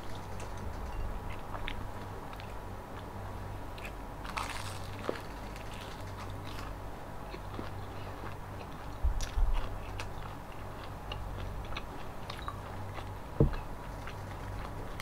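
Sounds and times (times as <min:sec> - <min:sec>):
crunching and chewing: 0:00.0 - 0:15.0.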